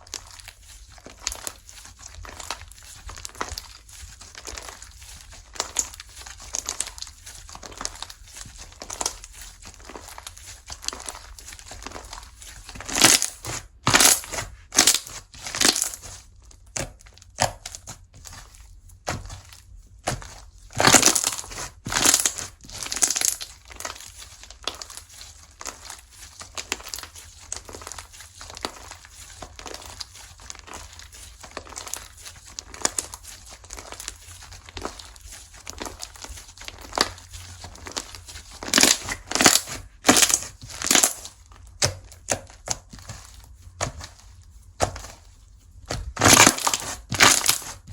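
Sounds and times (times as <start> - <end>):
slime squished by hand: 0.0 - 47.9.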